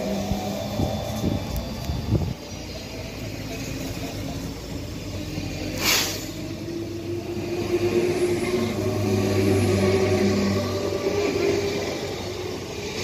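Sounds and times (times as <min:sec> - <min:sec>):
traction motor hum: 0:00.0 - 0:13.0
train rolling rumble: 0:00.0 - 0:13.0
short hiss: 0:05.8 - 0:06.4.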